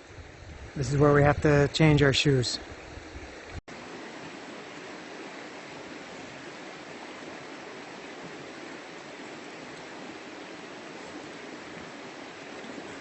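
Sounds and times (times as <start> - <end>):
river water rushing over rocks: 3.3 - 13.0.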